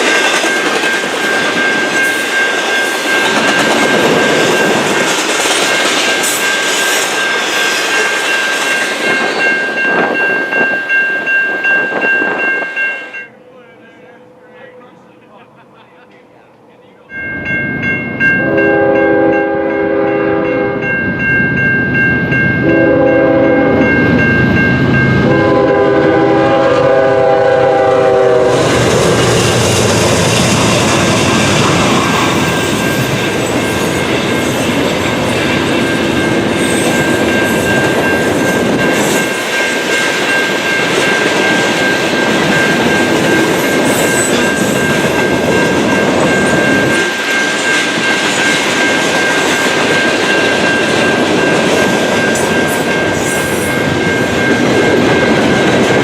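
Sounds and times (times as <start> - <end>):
steady high ringing tone: 0.0 - 15.6, 16.3 - 27.1, 28.9 - 56.0
train rumbling and clattering: 0.0 - 56.0
locomotive horn blasts: 18.4 - 20.9, 22.6 - 24.0, 25.2 - 29.2.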